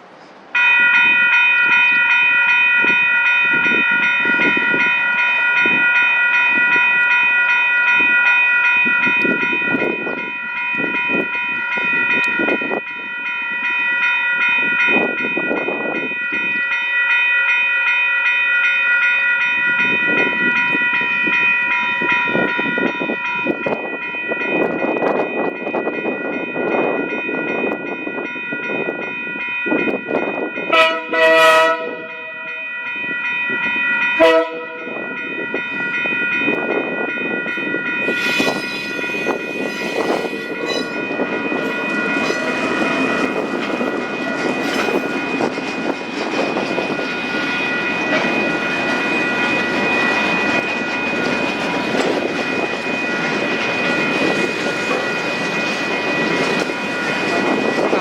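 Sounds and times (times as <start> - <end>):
freight wagons rumbling on rails: 19.2 - 58.0
locomotive horn tooting: 30.7 - 32.6, 34.2 - 34.9.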